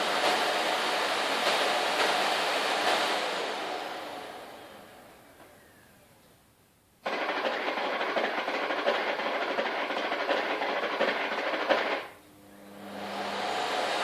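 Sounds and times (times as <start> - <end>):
vacuum cleaner rattling: 7.0 - 12.2.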